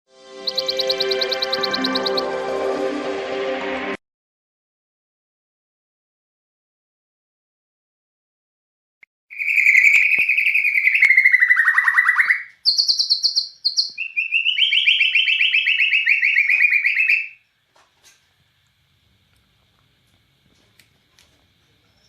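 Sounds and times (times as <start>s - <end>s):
bird singing rapid trills: 0.4s - 2.3s, 9.3s - 17.4s.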